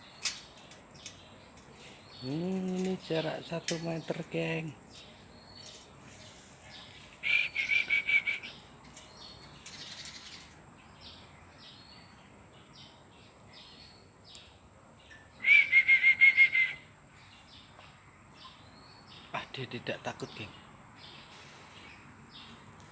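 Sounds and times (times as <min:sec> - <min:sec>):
bird chirping rapidly: 0:01.0 - 0:12.2.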